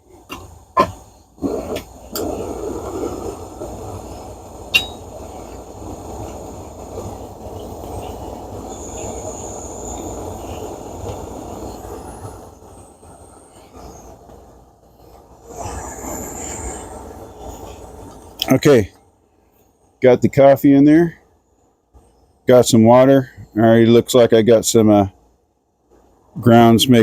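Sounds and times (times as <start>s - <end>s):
stove burner rushing: 0.0s - 18.7s.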